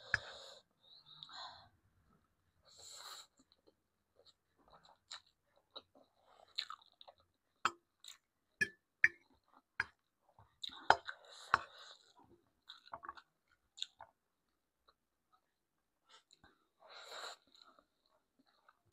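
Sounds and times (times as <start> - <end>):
person chewing: 3.4 - 7.3.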